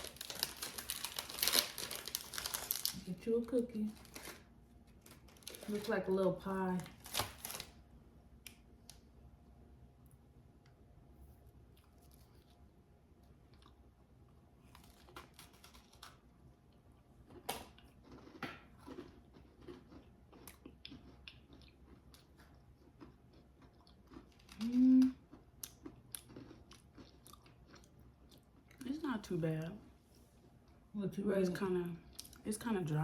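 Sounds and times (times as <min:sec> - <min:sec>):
people chewing cookies: 0:11.4 - 0:29.9
person humming: 0:24.6 - 0:25.2.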